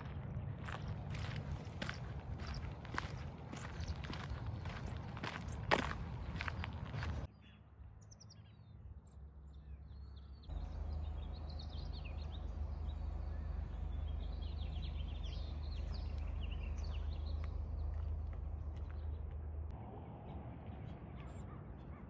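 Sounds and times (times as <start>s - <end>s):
footsteps: 0.0s - 7.3s
steady low rumble: 0.0s - 7.3s
small birds chirping: 0.0s - 8.7s, 9.5s - 19.5s.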